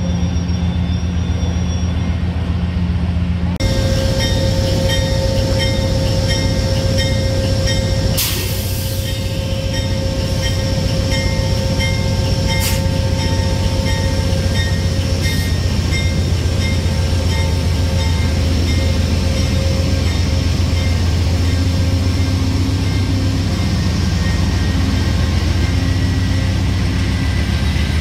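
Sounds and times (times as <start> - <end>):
train rumble: 0.0 - 28.0.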